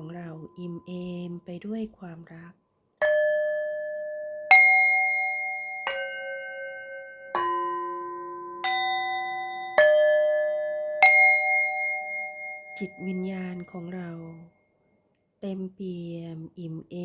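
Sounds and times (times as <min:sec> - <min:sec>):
metal chimes ringing: 0:03.0 - 0:14.1.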